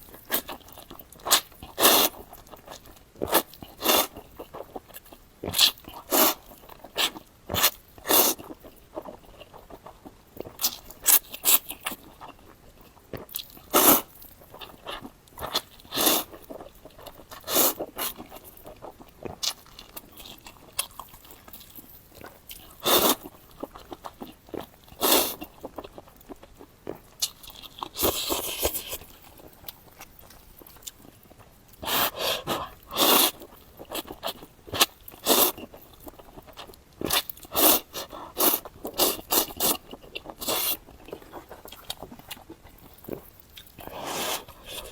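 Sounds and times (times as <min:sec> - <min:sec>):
chewing: 0:00.0 - 0:44.9
noodle slurping: 0:06.0 - 0:06.4, 0:31.8 - 0:33.5, 0:37.1 - 0:39.8.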